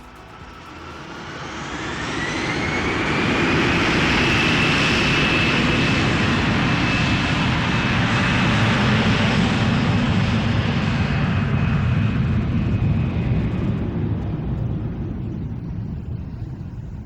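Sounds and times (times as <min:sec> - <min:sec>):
propeller plane engine droning: 0:00.0 - 0:17.0.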